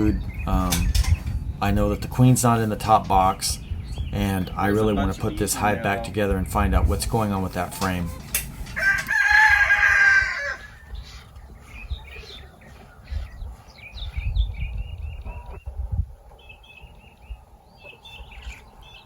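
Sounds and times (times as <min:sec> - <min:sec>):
small birds chirping: 0:00.0 - 0:19.0
rooster crowing: 0:08.7 - 0:10.9.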